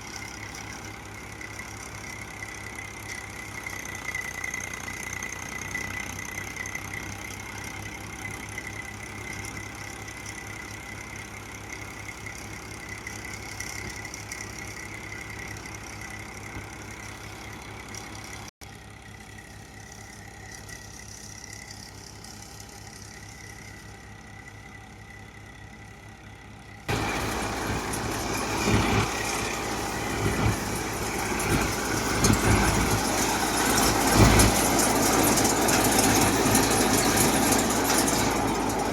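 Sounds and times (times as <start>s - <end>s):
tractor diesel engine running: 0.0s - 38.9s
rough machine noise with thumps: 26.9s - 38.9s.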